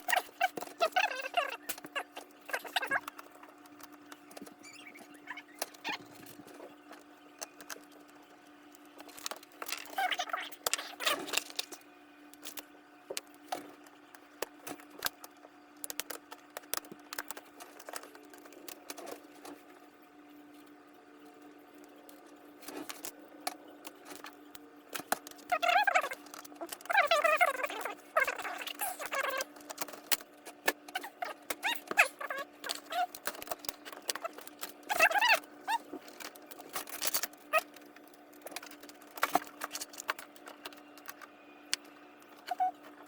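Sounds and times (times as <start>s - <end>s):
short squeaks: 4.6s - 6.1s.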